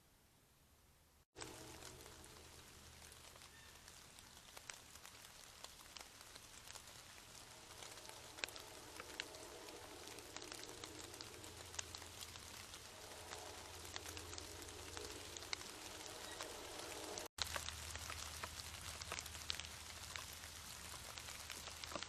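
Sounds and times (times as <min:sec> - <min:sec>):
faint rain: 0:00.0 - 0:22.0
steady low hum: 0:07.2 - 0:17.3.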